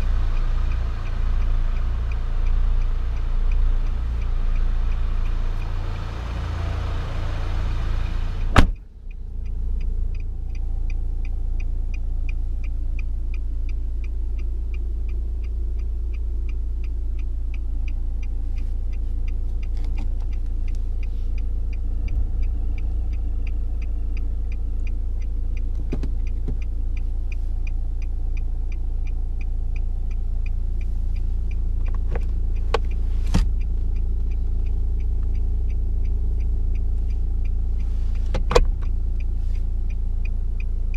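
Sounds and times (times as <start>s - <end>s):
diesel engine idling: 0.0s - 40.9s
engine ticking: 0.0s - 40.9s.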